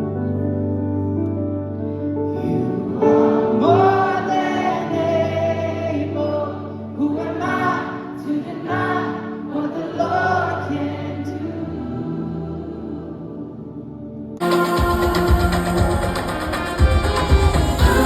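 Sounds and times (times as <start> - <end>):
song with sung vocals: 2.4 - 18.0.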